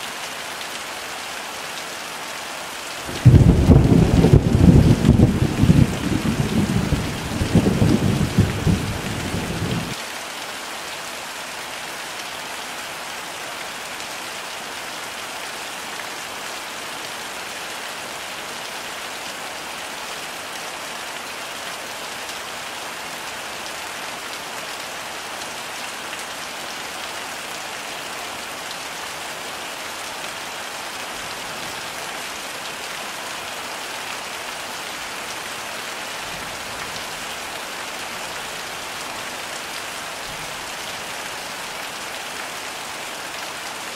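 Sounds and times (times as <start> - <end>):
heavy rain falling: 0.0 - 43.9
thunder rumble: 3.1 - 10.0.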